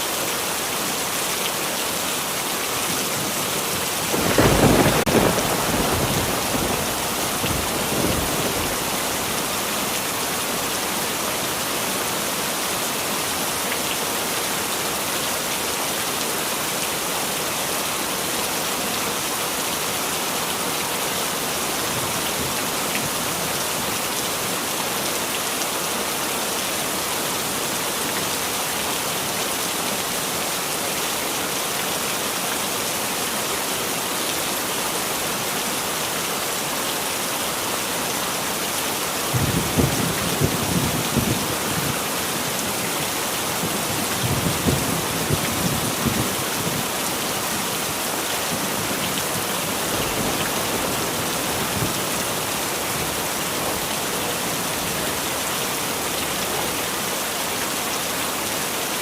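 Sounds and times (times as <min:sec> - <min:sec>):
heavy rain falling: 0:00.0 - 0:59.0
thunder rumbling: 0:04.1 - 0:09.2.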